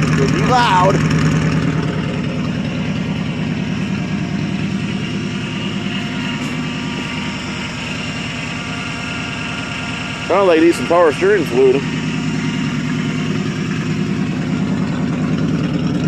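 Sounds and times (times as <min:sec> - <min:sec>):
car engine idling loudly: 0:00.0 - 0:16.0.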